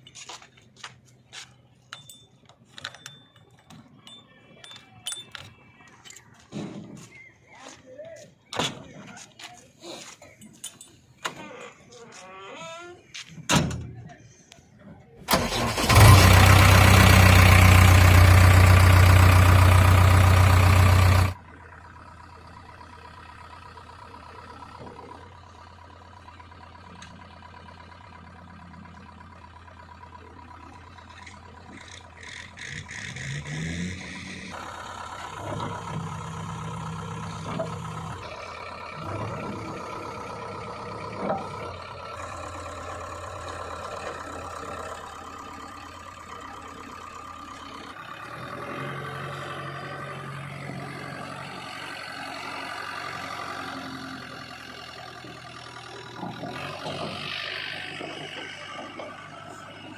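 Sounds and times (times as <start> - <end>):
metal clanks: 1.8 - 7.2
diesel engine of heavy machinery: 12.6 - 59.9.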